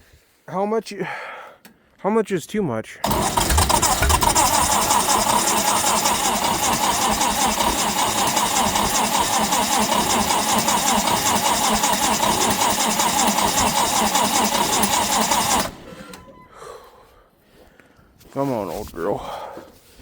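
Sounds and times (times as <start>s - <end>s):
engine cranking by starter: 3.0s - 16.5s.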